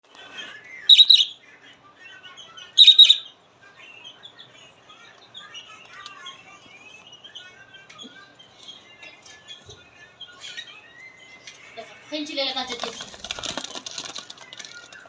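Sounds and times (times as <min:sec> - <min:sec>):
parrots chirping and chattering: 0:00.1 - 0:15.0
shrill bird call: 0:00.9 - 0:01.4, 0:02.8 - 0:03.3.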